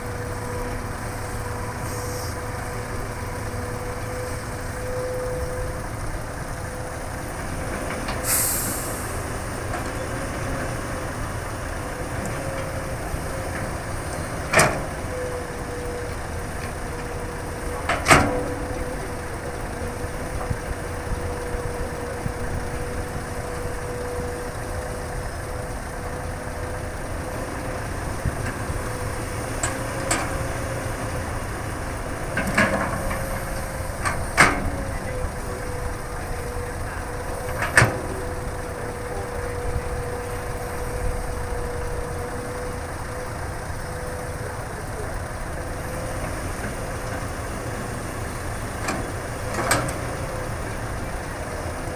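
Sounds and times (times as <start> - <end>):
excavator running: 0.0 - 51.9
short hiss: 1.8 - 2.4, 8.2 - 9.2
continuous steady tone: 9.0 - 51.9.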